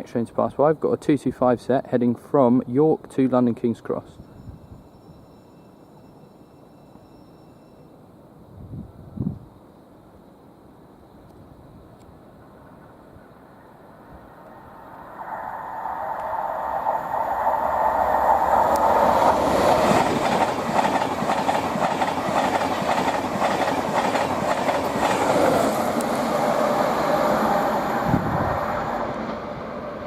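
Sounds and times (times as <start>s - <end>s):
train wheels clattering on rails: 17.9s - 27.5s.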